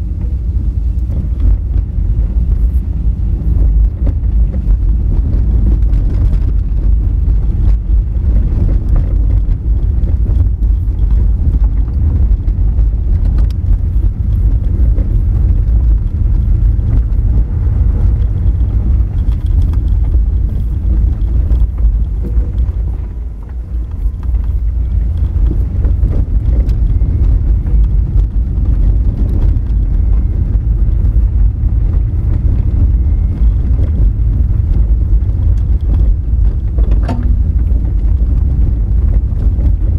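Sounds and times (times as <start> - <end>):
tyres rumbling on gravel: 0.0 - 39.9
small knocks: 36.7 - 37.9.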